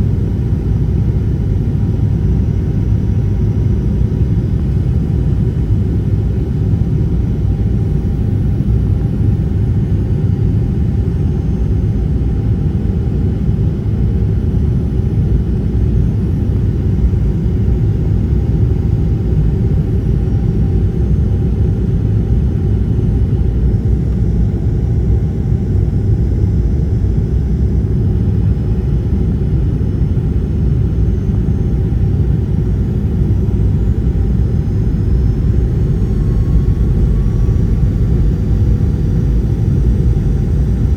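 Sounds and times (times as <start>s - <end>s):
airliner cabin engine rumble: 0.0s - 40.9s
faint whine: 13.4s - 40.9s.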